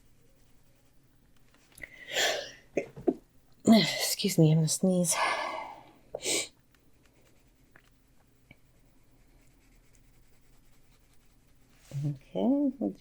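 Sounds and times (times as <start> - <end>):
colored pencil scratching on paper: 0.0 - 1.0, 7.2 - 7.7, 8.7 - 12.1.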